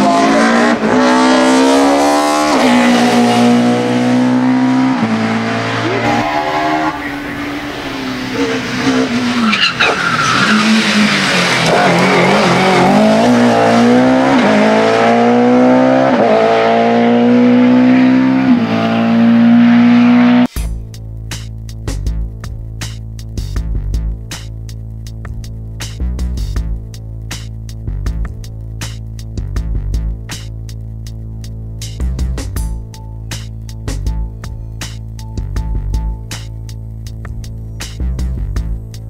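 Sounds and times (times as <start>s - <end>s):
racing car engine at high revs: 0.0s - 20.5s
tyre squeal: 5.8s - 12.7s.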